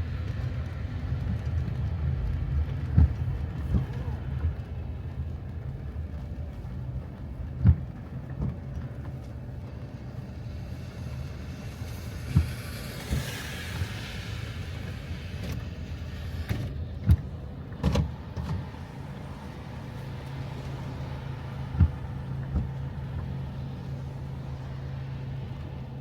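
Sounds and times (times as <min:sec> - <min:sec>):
vehicle engine rumble: 0:00.0 - 0:26.0
hiss: 0:10.4 - 0:16.7.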